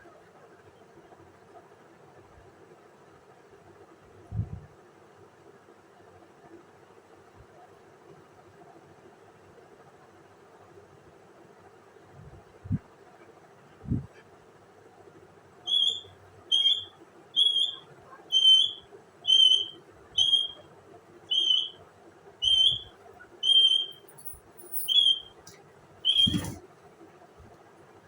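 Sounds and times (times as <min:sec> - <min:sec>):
parrot whistling: 0:15.7 - 0:20.6, 0:21.3 - 0:21.8, 0:22.4 - 0:24.2, 0:24.8 - 0:25.4, 0:26.0 - 0:26.6.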